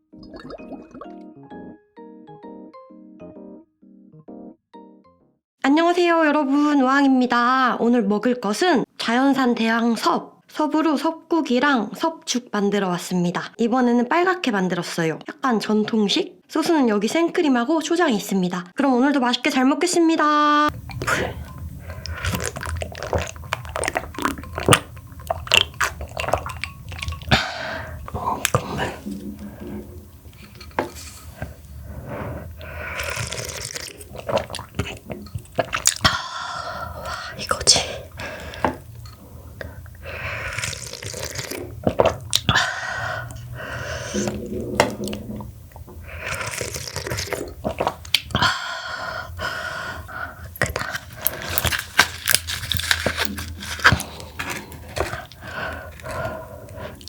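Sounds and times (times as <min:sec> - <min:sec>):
mouth clicks and smacks: 0:20.7 - 0:48.5
wet chewing and biting: 0:20.7 - 0:48.5, 0:50.1 - 0:57.0
sipping broth: 0:20.7 - 0:57.0.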